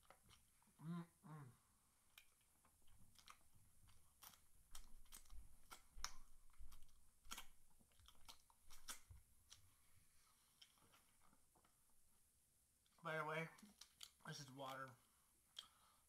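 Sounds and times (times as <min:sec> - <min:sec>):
person chewing crispy chicken: 0:00.0 - 0:00.6, 0:02.1 - 0:09.7, 0:10.6 - 0:11.2, 0:13.6 - 0:14.3.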